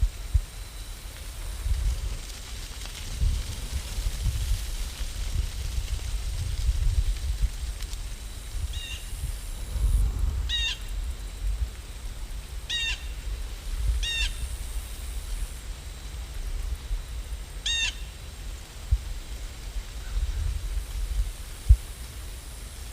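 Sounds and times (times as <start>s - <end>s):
low rumble: 3.1s - 14.5s
bird calling: 10.5s - 10.9s, 12.7s - 13.2s, 17.6s - 18.1s.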